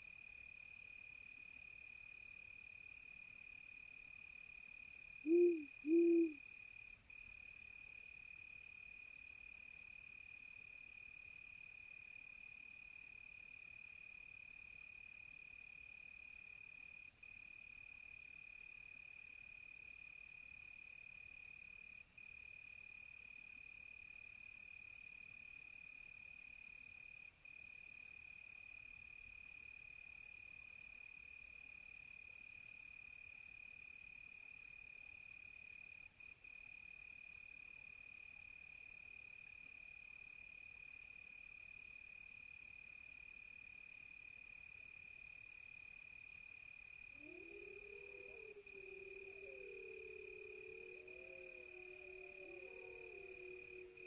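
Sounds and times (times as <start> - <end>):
crickets trilling: 5.3 - 6.4, 47.0 - 54.0
owl hooting: 5.3 - 6.4, 47.2 - 54.0.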